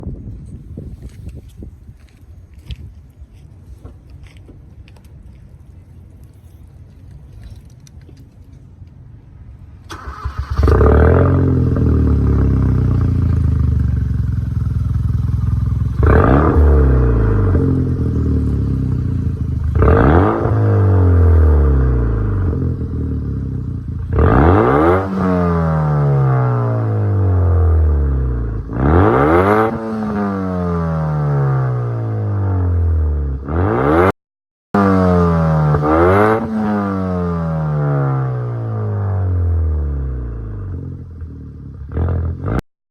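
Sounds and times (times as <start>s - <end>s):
car engine revving: 9.9s - 32.8s, 34.8s - 41.1s.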